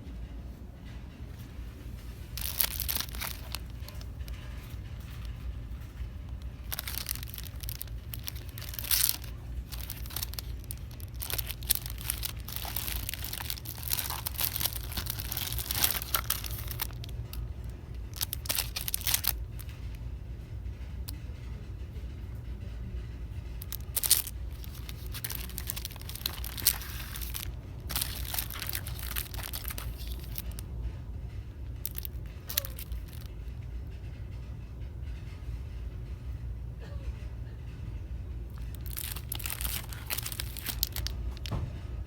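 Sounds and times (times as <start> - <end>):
steady low hum: 0.0 - 42.0
plastic packaging crinkling: 2.2 - 19.8, 23.6 - 30.6, 31.8 - 33.3, 38.6 - 41.6.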